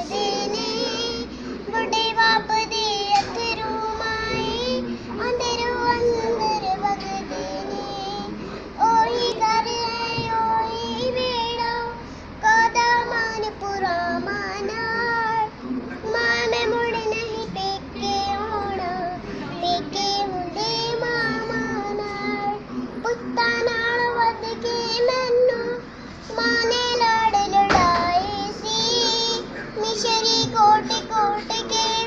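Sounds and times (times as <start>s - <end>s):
child singing in a high voice: 0.0s - 32.0s.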